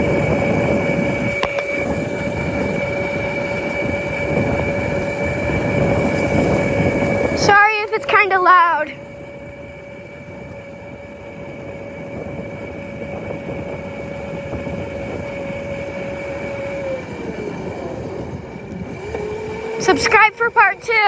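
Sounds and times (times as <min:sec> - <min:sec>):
motorcycle engine running: 0:00.0 - 0:21.0
wind rushing over microphone: 0:00.0 - 0:21.0.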